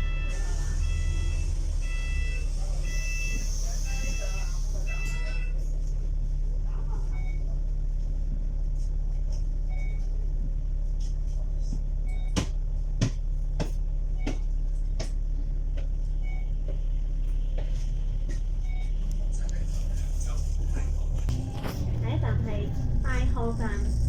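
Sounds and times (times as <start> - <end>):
faint short beep: 0.0 - 5.6
bus engine and road rumble: 0.0 - 24.0.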